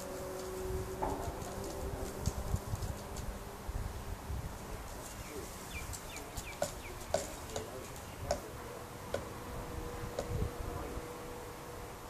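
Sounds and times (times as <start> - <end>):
bird tapping on car mirror: 5.9 - 8.5.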